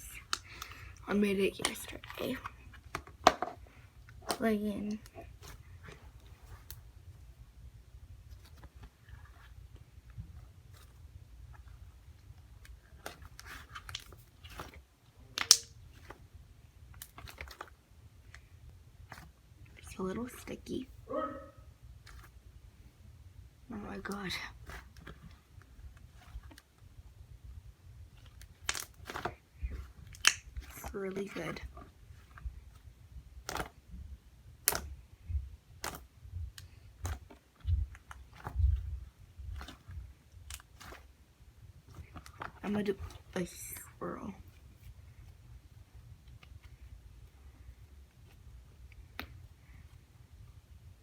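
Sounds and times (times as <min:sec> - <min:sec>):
slime squished in hands: 0:12.9 - 0:16.2
sharp slime pop: 0:15.4 - 0:15.8, 0:30.2 - 0:30.7, 0:34.6 - 0:34.9.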